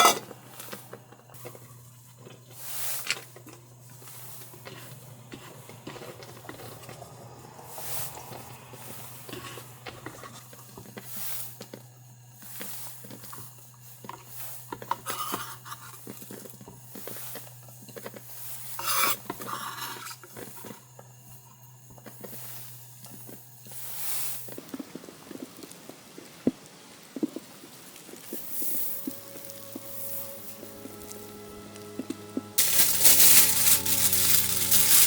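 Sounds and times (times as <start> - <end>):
utensils clinking on pots and dishes: 0.0 - 7.0, 14.7 - 16.2, 18.8 - 20.7, 32.6 - 35.0.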